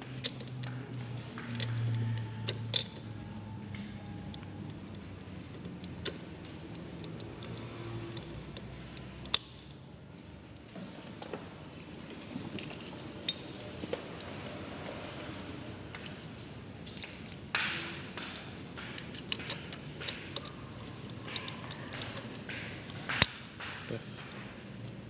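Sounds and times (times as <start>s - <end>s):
metallic clicks of bobbin cases: 0.2s - 3.2s, 16.9s - 24.4s.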